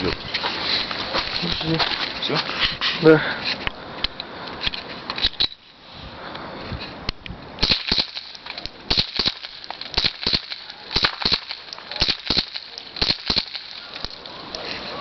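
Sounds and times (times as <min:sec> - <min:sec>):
suppressed pistol shots: 0:07.6 - 0:13.8.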